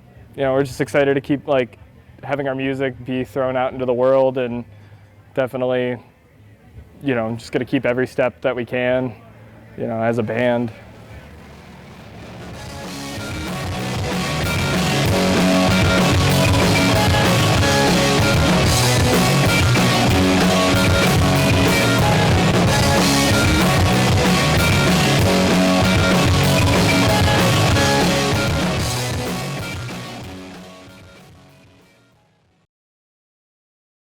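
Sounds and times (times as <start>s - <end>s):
pop-punk band music: 10.9s - 31.9s.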